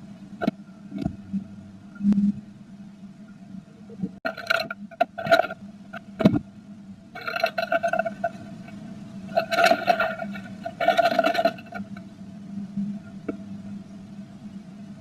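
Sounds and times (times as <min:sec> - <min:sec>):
steady low hum: 0:00.0 - 0:15.0
scraping and rustling in nest box: 0:04.3 - 0:05.6, 0:07.2 - 0:08.5, 0:09.3 - 0:12.0.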